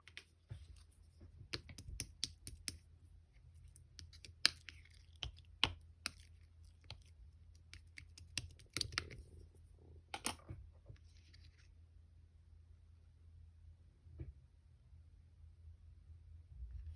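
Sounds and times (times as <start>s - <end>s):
faint low hum: 0.0s - 16.9s.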